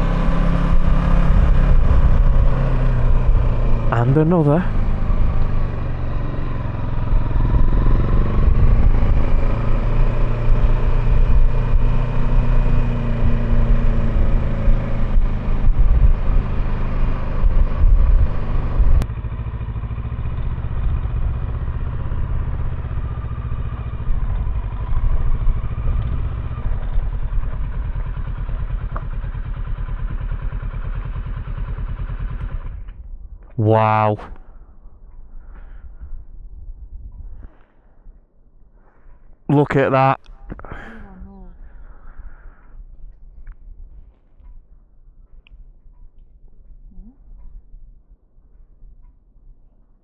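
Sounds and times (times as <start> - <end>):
motorcycle engine running: 0.0 - 33.0
road and wind noise: 0.0 - 50.0.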